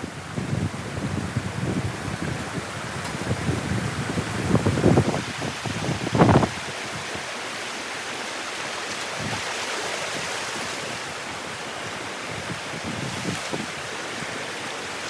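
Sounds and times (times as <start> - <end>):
wind buffeting microphone: 0.0 - 7.4, 11.8 - 14.5
flowing water: 0.0 - 15.0.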